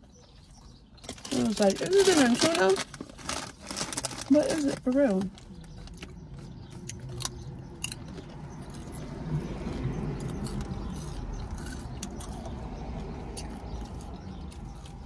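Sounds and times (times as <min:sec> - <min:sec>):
chewing and crunching chips: 0:00.0 - 0:15.0.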